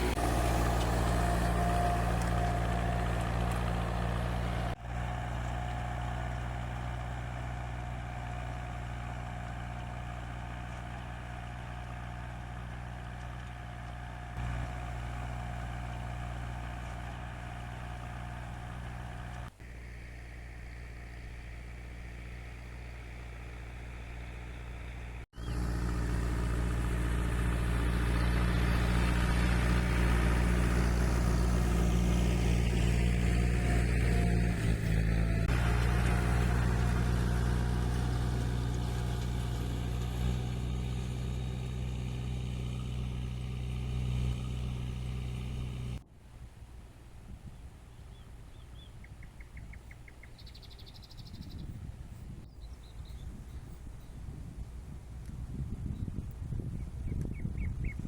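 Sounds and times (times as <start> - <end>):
tractor engine running: 0.0 - 46.1.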